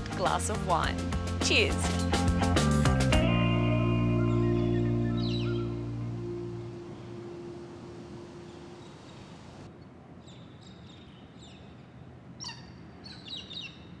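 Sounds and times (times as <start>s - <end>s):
bird chirping: 4.2s - 11.8s
faint steady hiss: 6.1s - 9.7s.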